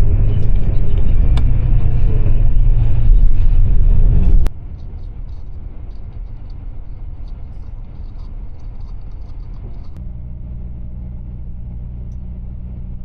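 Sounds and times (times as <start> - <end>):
coach rumbling on road: 0.0 - 4.5
quiet low drone: 0.0 - 13.0.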